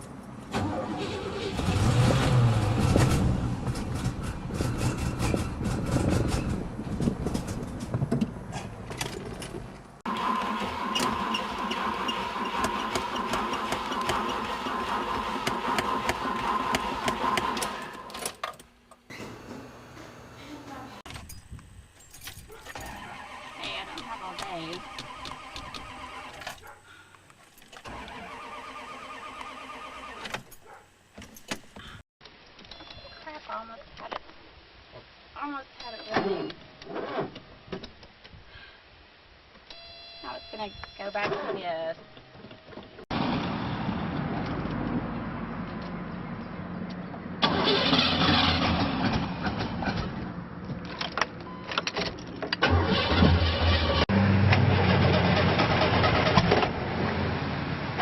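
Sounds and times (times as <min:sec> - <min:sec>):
car engine cranking on starter: 0:00.5 - 0:04.1, 0:10.1 - 0:18.1, 0:27.8 - 0:30.5, 0:47.4 - 0:49.3, 0:52.6 - 0:54.1, 0:54.8 - 0:56.8.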